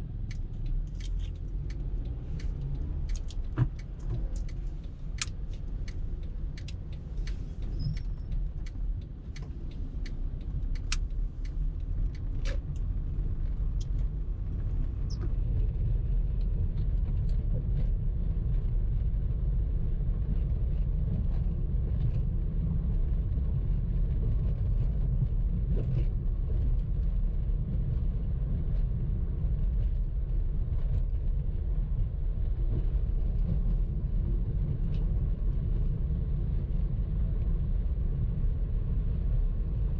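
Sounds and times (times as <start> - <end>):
car road and engine rumble: 0.0 - 39.9
sharp clicks: 0.2 - 12.9.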